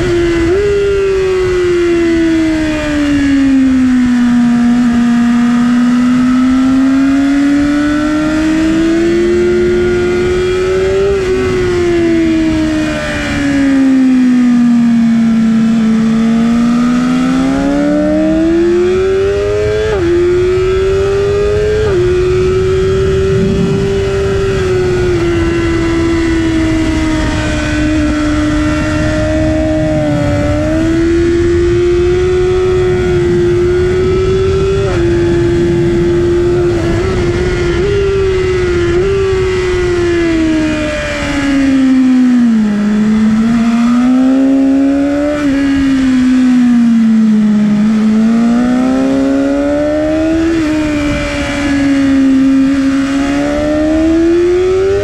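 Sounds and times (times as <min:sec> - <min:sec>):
motorcycle engine at high revs: 0:00.0 - 0:55.0
wind noise: 0:00.0 - 0:55.0.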